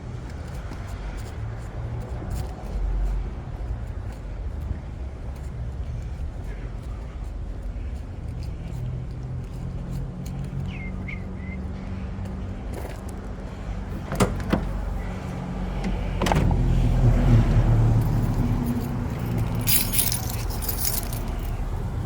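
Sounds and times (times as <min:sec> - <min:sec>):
metallic jingle: 0:18.0 - 0:21.8.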